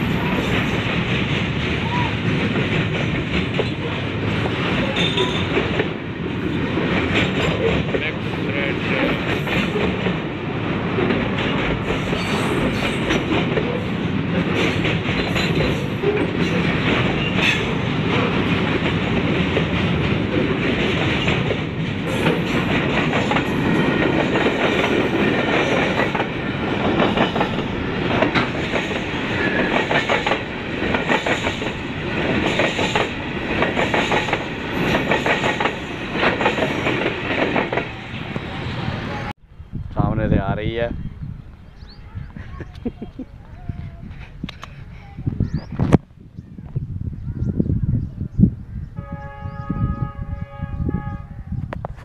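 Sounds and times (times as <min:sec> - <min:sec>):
clickety-clack of rail joints: 0:00.0 - 0:38.7, 0:43.8 - 0:46.0
train wheels rumbling on rails: 0:00.0 - 0:52.0.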